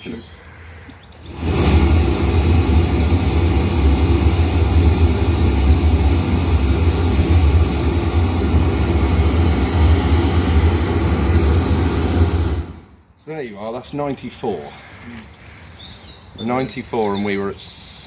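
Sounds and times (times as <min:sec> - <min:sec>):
pink noise with deep bass: 0:01.2 - 0:12.9.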